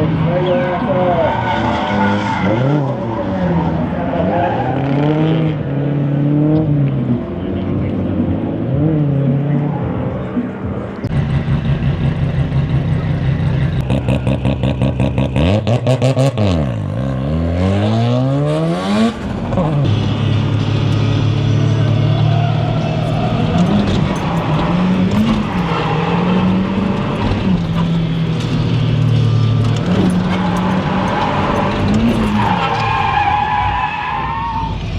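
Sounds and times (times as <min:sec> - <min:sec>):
car engine revving high: 0:00.0 - 0:33.8.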